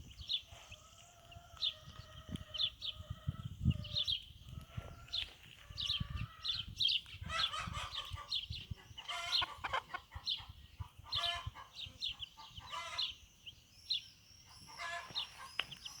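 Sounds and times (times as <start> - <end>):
chicks peeping: 0.0 - 16.0
hen clucking: 7.2 - 13.2, 14.7 - 15.9.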